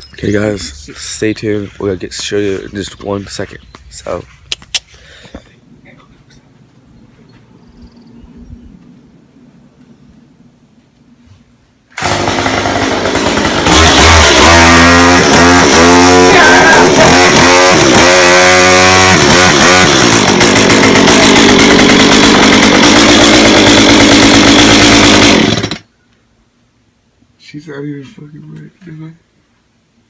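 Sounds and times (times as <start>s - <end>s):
chainsaw revving: 0.4s - 2.8s, 12.0s - 25.8s.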